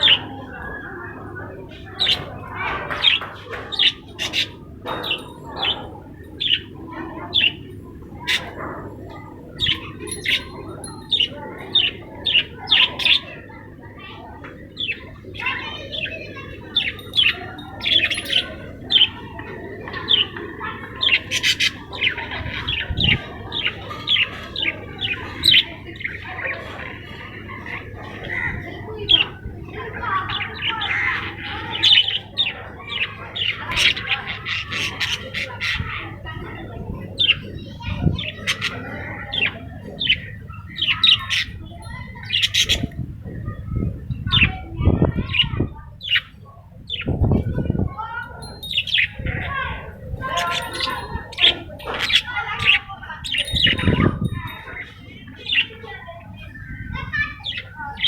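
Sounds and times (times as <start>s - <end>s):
budgerigars warbling chatter: 0.0s - 43.6s, 45.3s - 58.0s
budgerigars chirping: 9.6s - 13.2s, 21.1s - 26.2s, 38.2s - 42.9s.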